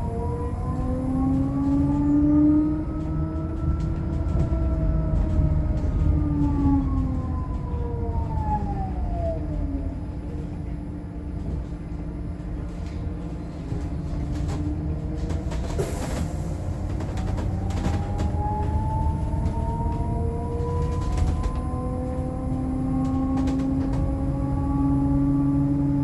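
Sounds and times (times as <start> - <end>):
electric bus motor whine: 0.0 - 26.0.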